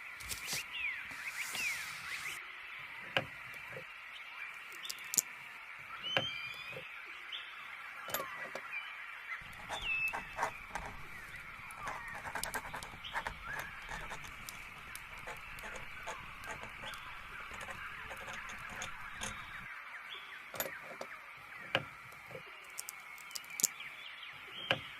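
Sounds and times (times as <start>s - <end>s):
birds chirping: 4.5s - 6.9s, 7.9s - 24.9s
small sharp ticks: 4.8s - 5.3s, 22.2s - 23.8s.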